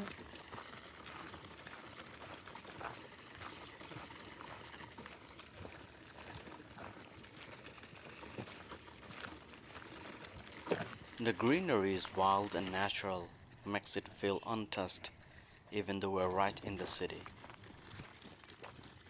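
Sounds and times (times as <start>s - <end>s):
even outdoor hiss: 11.2s - 17.2s.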